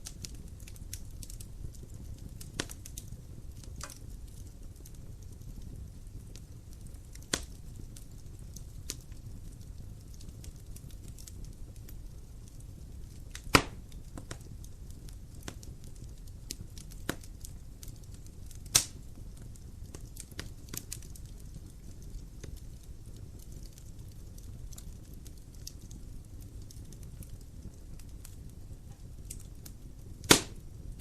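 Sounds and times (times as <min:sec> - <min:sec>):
low rumble of flames: 0:00.0 - 0:31.0
wood fire crackling: 0:00.0 - 0:31.0
loud sharp pops: 0:13.5 - 0:13.8, 0:30.2 - 0:30.6.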